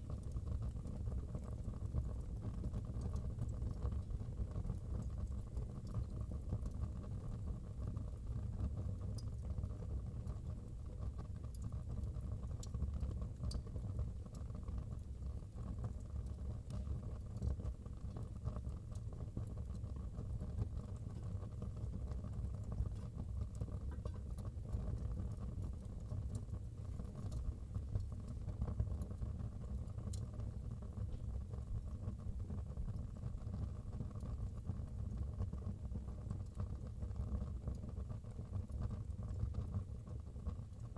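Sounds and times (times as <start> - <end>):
wood fire crackling and popping: 0.1 - 7.3, 10.3 - 33.2.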